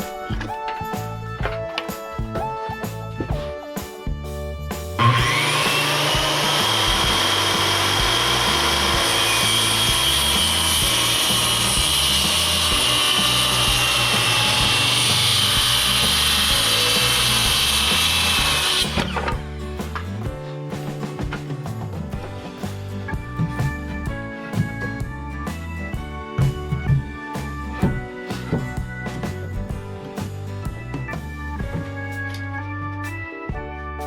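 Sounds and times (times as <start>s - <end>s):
background music with bass: 0.0s - 34.0s
power tool whining: 5.0s - 19.4s.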